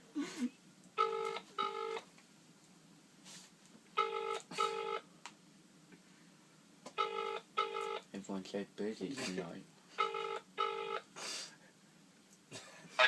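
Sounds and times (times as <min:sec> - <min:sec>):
telephone ringback tone: 0:01.0 - 0:02.0, 0:04.0 - 0:05.0, 0:07.0 - 0:08.1, 0:10.0 - 0:11.1.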